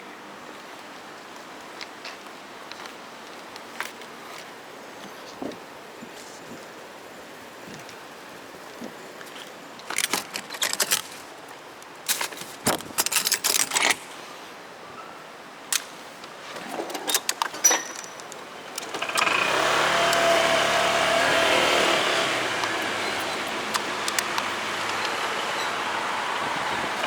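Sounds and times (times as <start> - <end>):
clinking and rattling handling: 9.8 - 11.4, 12.1 - 14.1, 16.5 - 19.3.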